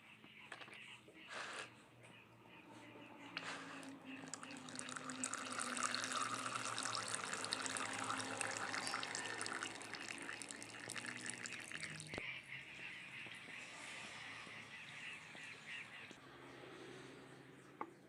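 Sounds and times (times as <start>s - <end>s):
oil pouring into container: 3.4s - 12.2s.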